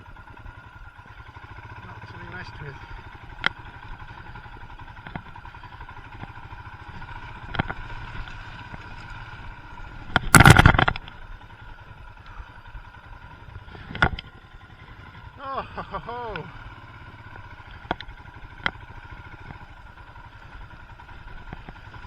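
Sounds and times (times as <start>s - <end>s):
motorcycle engine at low revs: 0.0s - 22.0s
motorcycle knocking over ruts: 3.0s - 12.0s, 16.4s - 22.0s
loud burst of noise: 10.3s - 10.8s.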